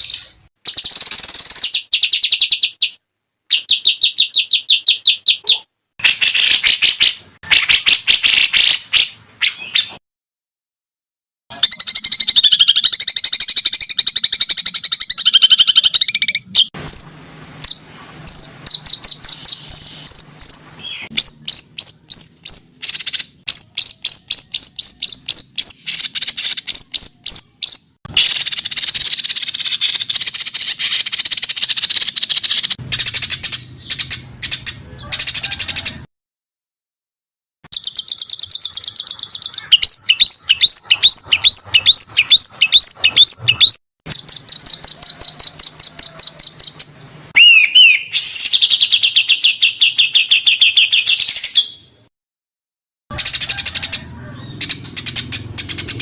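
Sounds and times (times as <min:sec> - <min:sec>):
songbird trills: 0:37.7 - 0:51.9.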